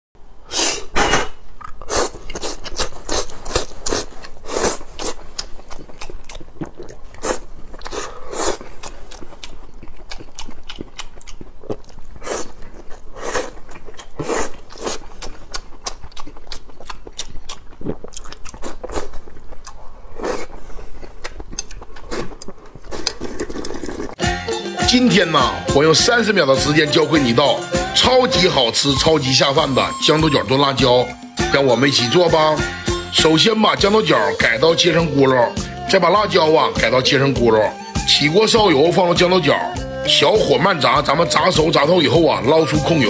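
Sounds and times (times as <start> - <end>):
wet mouth sounds: 0.5 - 24.2
person chewing food: 1.2 - 24.2.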